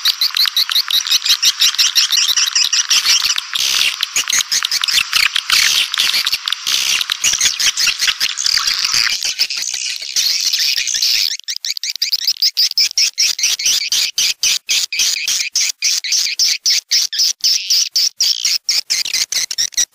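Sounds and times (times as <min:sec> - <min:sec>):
swiftlet twittering chatter: 0:00.0 - 0:13.8
sharp bird chirps: 0:00.0 - 0:14.0.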